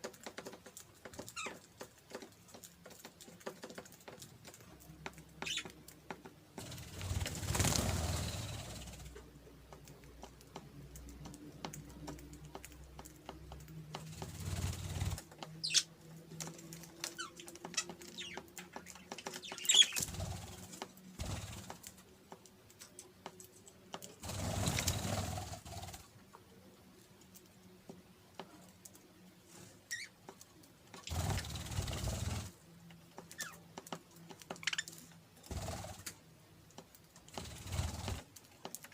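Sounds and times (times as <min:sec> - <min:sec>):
budgerigars chirping: 0:05.4 - 0:05.7, 0:19.4 - 0:20.1.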